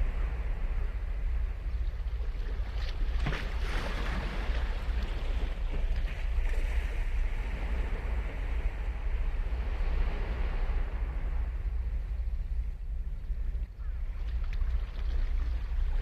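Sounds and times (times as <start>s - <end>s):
steady low rumble: 0.0s - 16.0s
ocean waves crashing: 3.2s - 12.0s.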